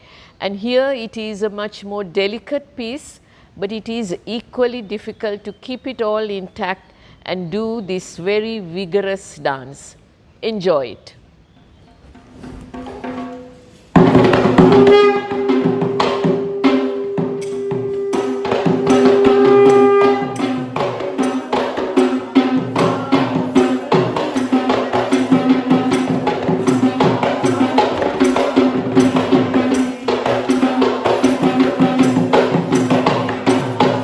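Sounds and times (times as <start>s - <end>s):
fast drumming: 12.2s - 34.0s
wind instrument holding note: 14.2s - 29.0s
held low tone: 14.6s - 20.7s
jingling rattle: 18.8s - 34.0s.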